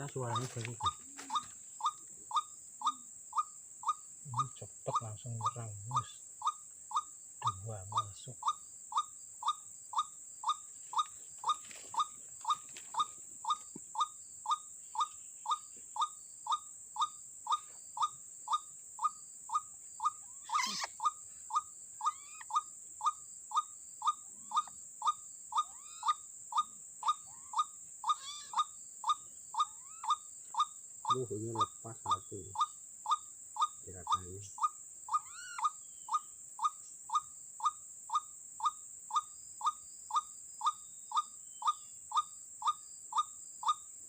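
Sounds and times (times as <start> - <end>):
scuffle: 0.0 - 1.6, 10.9 - 13.8
waterhen calling: 0.0 - 6.6, 19.5 - 22.6, 27.0 - 28.7, 29.6 - 30.2, 34.1 - 36.2.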